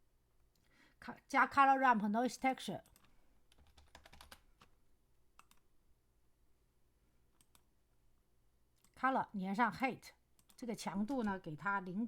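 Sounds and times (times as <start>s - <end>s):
keyboard typing: 2.8s - 4.8s, 5.4s - 5.7s, 7.4s - 7.7s, 10.4s - 12.0s.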